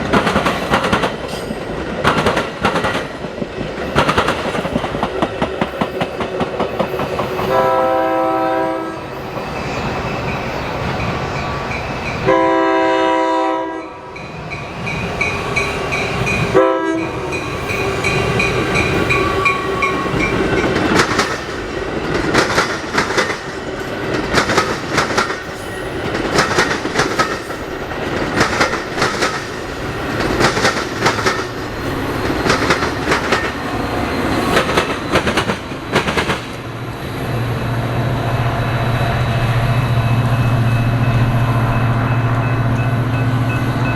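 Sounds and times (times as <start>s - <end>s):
train wheels clicking over rails: 0.0s - 7.9s, 14.1s - 37.3s
locomotive horn blasts: 7.4s - 9.2s, 12.2s - 14.1s, 16.5s - 17.2s.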